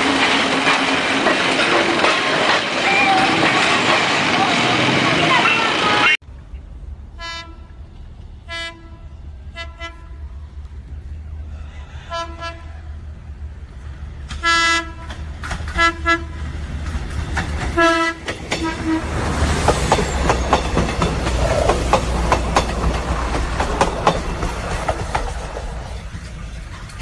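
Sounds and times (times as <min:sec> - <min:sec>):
wheels clacking over rail joints: 0:00.0 - 0:06.1, 0:13.7 - 0:27.0
diesel train engine rumble: 0:00.0 - 0:27.0
train horn blasts: 0:07.2 - 0:07.8, 0:08.4 - 0:10.3, 0:12.0 - 0:12.9, 0:14.3 - 0:16.4, 0:17.7 - 0:19.2.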